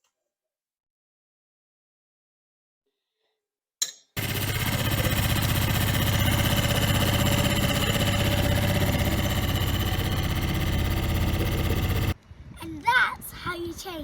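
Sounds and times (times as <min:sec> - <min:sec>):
outboard engine idling: 0:04.2 - 0:12.2.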